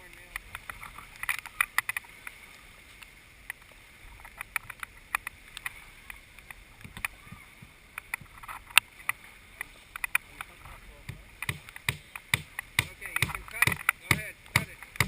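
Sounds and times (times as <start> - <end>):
hammer driving nail into wood: 11.4 - 15.0.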